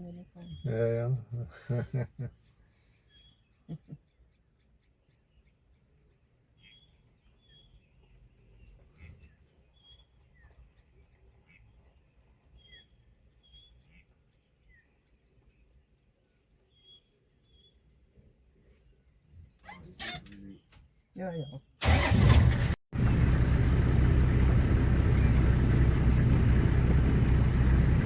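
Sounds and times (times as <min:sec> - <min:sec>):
faint bird chirps: 0:02.2 - 0:12.0.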